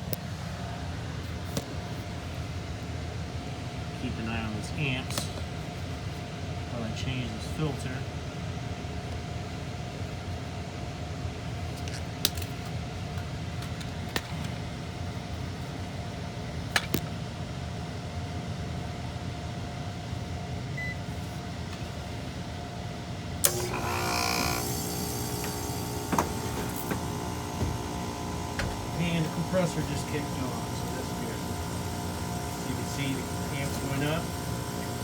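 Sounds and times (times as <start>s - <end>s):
compressor tonal hum: 20.8s - 35.0s
blower fan humming: 23.2s - 35.0s.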